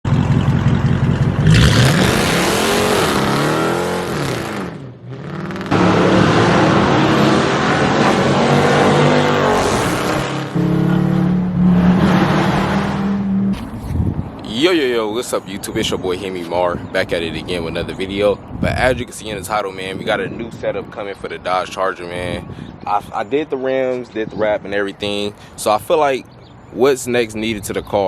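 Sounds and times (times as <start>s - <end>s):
car exhaust revving: 0.1s - 14.2s.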